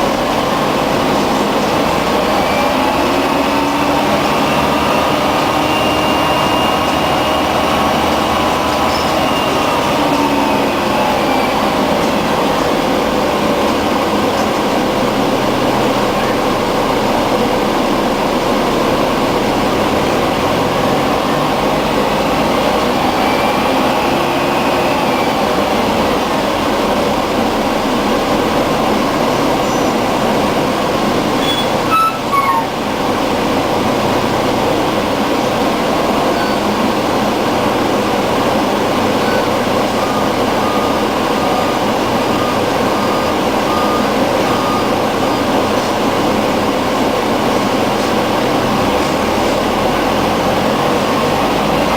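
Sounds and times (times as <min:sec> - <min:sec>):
bus diesel engine drone: 0:00.0 - 0:51.9
short beeps: 0:31.4 - 0:32.7, 0:39.2 - 0:45.1.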